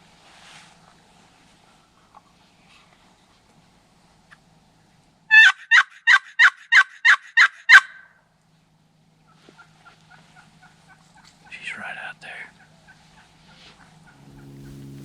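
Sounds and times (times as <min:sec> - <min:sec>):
turkey call raspy yelps: 0:05.3 - 0:08.2, 0:12.5 - 0:14.5.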